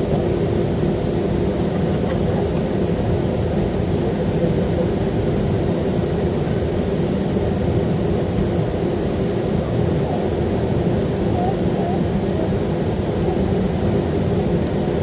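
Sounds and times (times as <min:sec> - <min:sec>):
airplane cabin engine rumble: 0:00.0 - 0:15.0.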